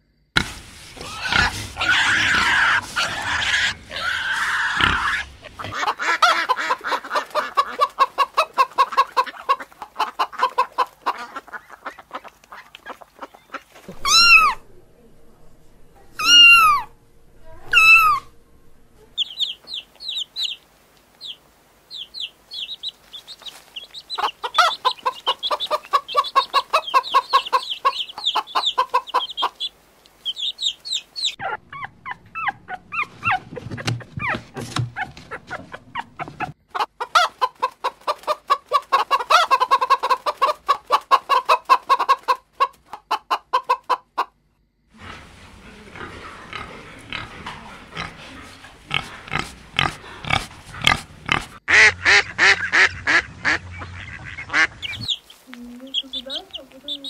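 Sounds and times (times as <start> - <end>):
chickens clucking: 0.4 - 14.8, 16.0 - 57.0
high peeping calls: 16.2 - 16.9, 19.1 - 33.4, 51.7 - 57.0.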